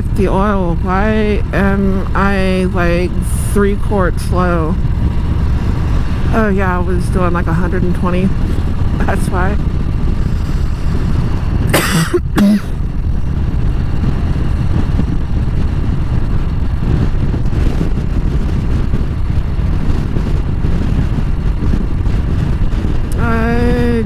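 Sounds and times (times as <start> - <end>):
motorcycle engine running: 0.0 - 24.0
wind rush over microphone: 0.0 - 24.0.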